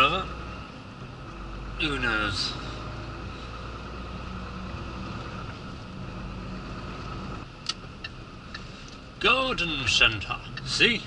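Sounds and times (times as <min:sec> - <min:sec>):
diesel engine: 0:00.0 - 0:11.0
road noise: 0:00.0 - 0:11.0
sharp clicks: 0:07.6 - 0:09.0.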